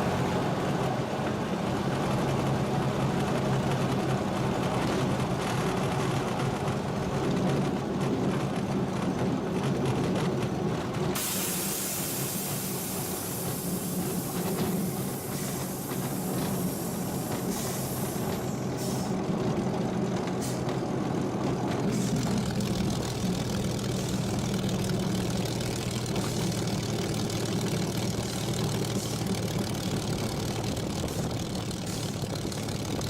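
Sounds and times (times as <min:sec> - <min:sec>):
aircraft engine running: 0:00.0 - 0:33.0
hiss: 0:11.2 - 0:19.2, 0:20.4 - 0:20.8, 0:21.9 - 0:22.4, 0:26.1 - 0:26.7, 0:28.1 - 0:29.4, 0:30.8 - 0:32.4.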